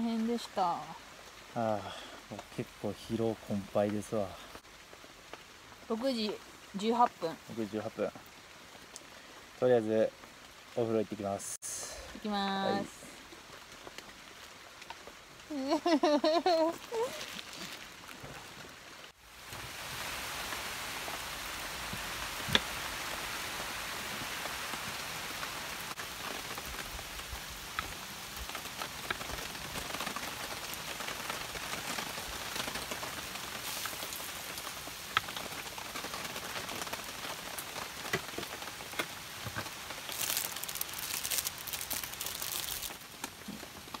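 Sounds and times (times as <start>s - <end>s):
steady rain falling: 0.0s - 44.0s
plastic bag crinkling: 16.8s - 18.3s, 39.7s - 43.2s.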